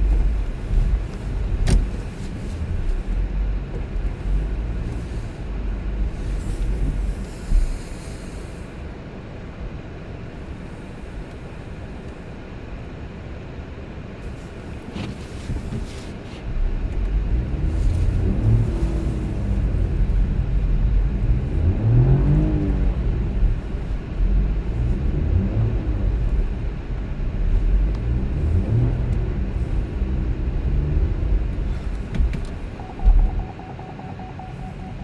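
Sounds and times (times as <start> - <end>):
car engine and road noise: 0.0 - 35.0
faint steady tone: 32.7 - 35.0.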